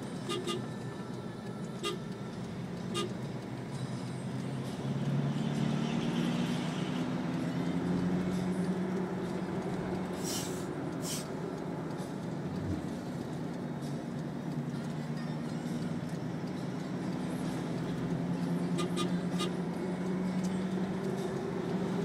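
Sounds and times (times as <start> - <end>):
road noise: 0.0 - 22.0
short hisses: 10.2 - 11.3.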